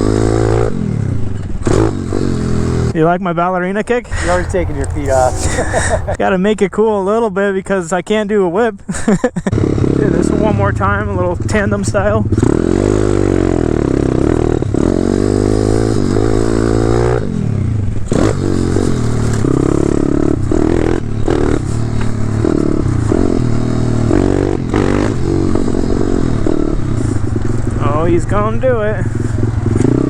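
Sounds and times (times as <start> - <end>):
motorbike engine revving: 0.0 - 3.0, 4.1 - 6.3, 9.5 - 30.0.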